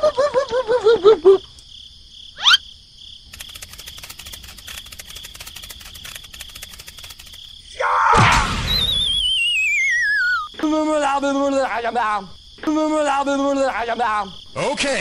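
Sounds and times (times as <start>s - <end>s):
crickets chirping: 0.0s - 15.0s
cartoon warbling squeaks: 2.4s - 2.6s, 8.5s - 10.6s
rising whistle glide: 8.7s - 10.5s.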